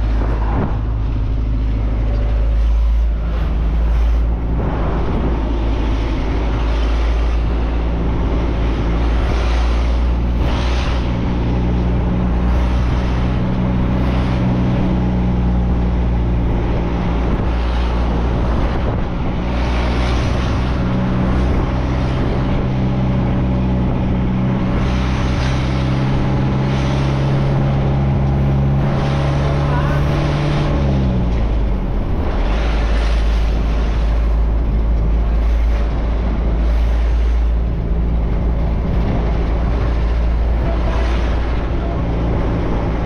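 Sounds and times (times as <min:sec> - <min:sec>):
road and wind noise: 0:00.0 - 0:43.0
truck engine droning: 0:00.0 - 0:43.0.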